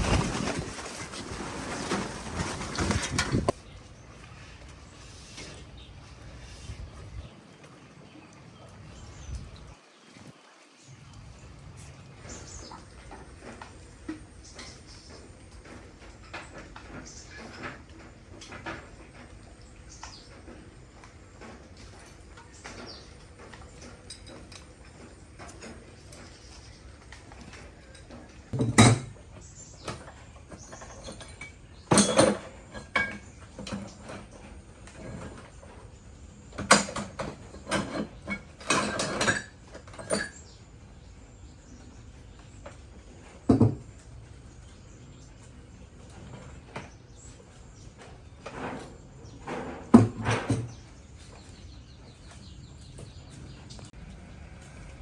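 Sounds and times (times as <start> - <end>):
metal tools clanking: 0.0 - 3.6, 21.8 - 35.8, 36.4 - 40.7.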